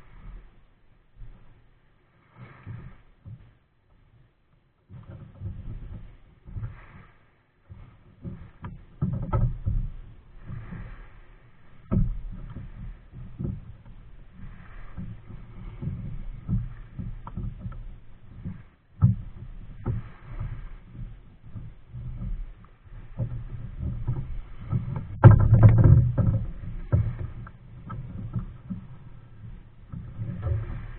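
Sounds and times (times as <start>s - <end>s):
irregular low rumble: 0.0s - 4.4s, 5.0s - 30.9s
paddle splashing water: 0.0s - 30.9s
sharp knocks: 25.1s - 27.3s.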